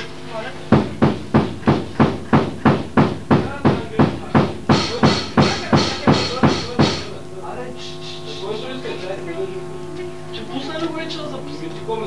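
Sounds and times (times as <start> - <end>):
heavy percussive hits: 0.7 - 7.2.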